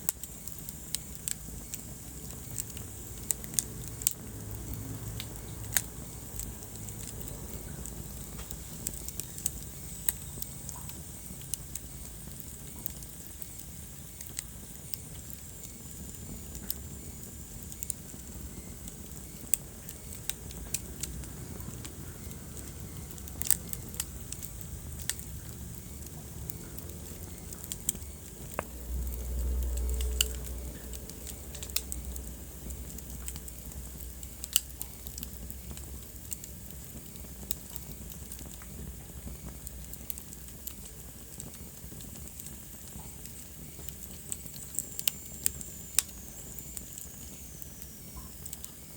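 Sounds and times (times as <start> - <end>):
wood fire crackling: 0.0 - 48.9.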